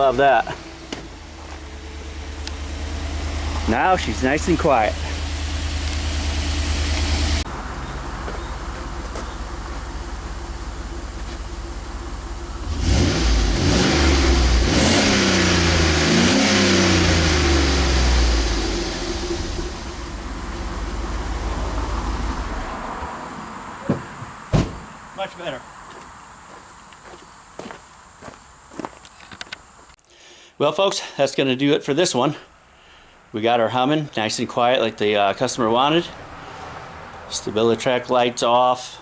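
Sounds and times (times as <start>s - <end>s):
pickup engine idling and revving: 0.0s - 25.1s
sharp knocks: 23.8s - 24.9s.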